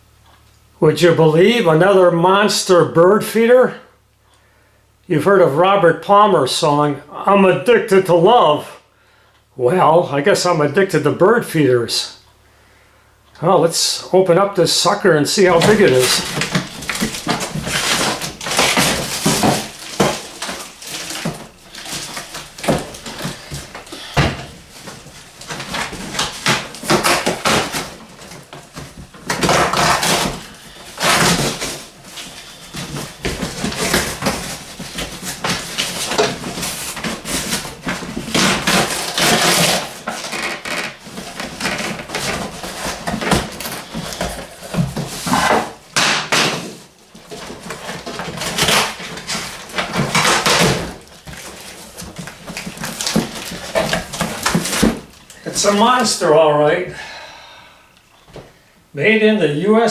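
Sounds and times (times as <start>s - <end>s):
cardboard packaging tearing: 15.4s - 56.2s
knocks and bumps: 15.5s - 56.1s.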